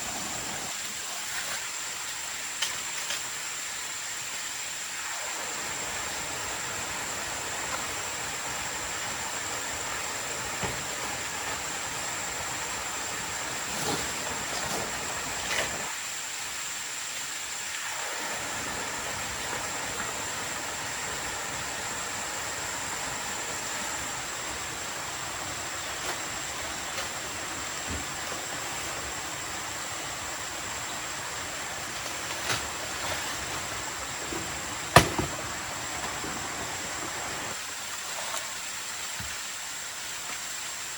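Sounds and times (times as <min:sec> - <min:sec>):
water rushing: 0:00.0 - 0:40.9
scattered knocks: 0:34.3 - 0:35.6.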